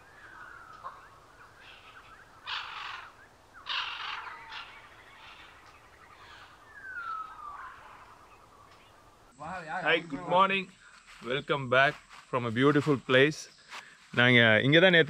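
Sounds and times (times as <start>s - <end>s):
falling whistled bird calls: 0.0s - 9.1s
harsh bird calls: 0.0s - 10.1s.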